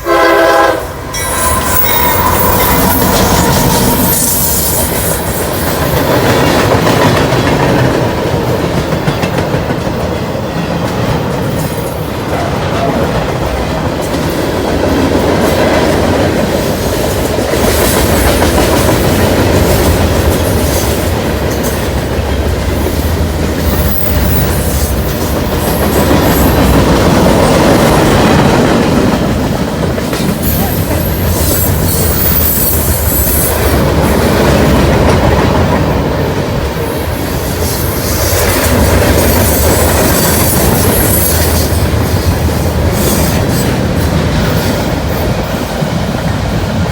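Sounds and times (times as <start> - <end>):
train wheels rumbling on rails: 0.0 - 46.9
wheel squeal: 1.1 - 5.7, 31.1 - 33.6
clickety-clack over rail joints: 4.7 - 46.9.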